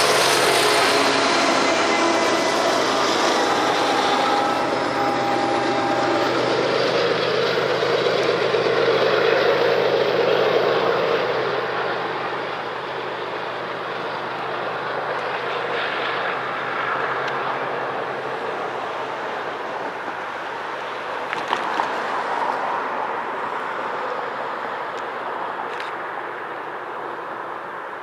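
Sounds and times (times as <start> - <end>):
steady rumbling noise: 0.0 - 21.3
diesel locomotive running: 0.0 - 28.0.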